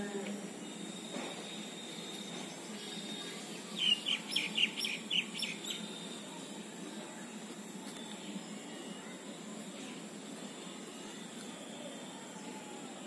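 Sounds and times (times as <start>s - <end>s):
bird chirping: 0.6s - 6.1s.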